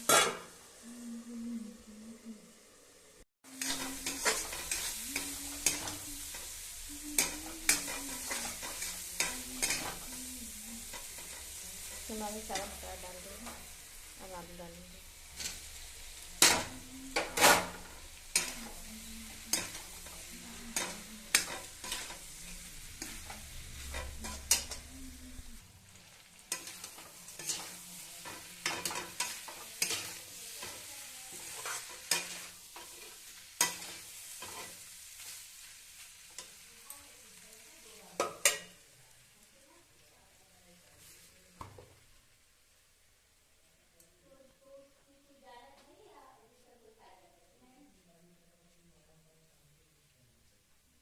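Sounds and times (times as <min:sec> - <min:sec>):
potatoes sizzling in oil: 0:00.0 - 0:01.0, 0:02.5 - 0:45.4
spatula scraping a pan: 0:03.5 - 0:13.7, 0:15.3 - 0:25.4, 0:26.4 - 0:36.6.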